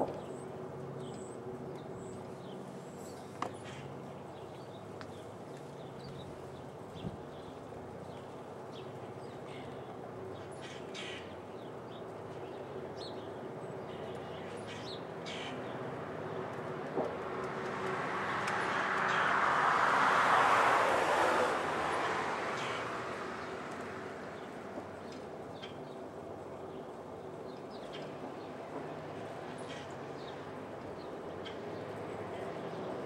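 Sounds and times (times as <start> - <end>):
vehicle passing: 15.9 - 25.1.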